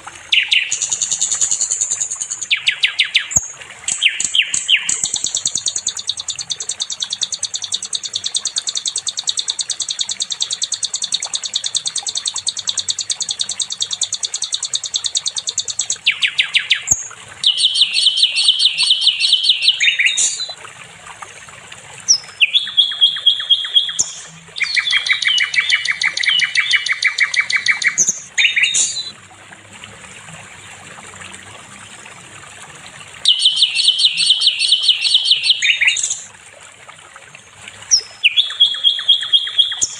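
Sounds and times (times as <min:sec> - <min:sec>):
bird singing high trill: 0:00.3 - 0:20.6, 0:22.1 - 0:29.1, 0:33.2 - 0:36.3, 0:37.9 - 0:39.9.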